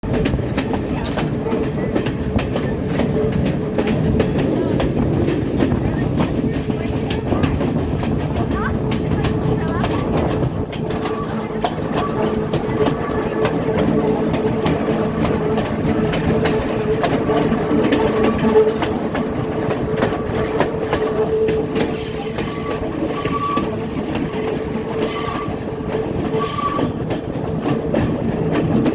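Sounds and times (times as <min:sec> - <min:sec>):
train rumble: 0:00.0 - 0:28.9
wheels clicking over rail joints: 0:00.0 - 0:28.9
wheel squeals: 0:16.4 - 0:19.0, 0:19.6 - 0:27.2.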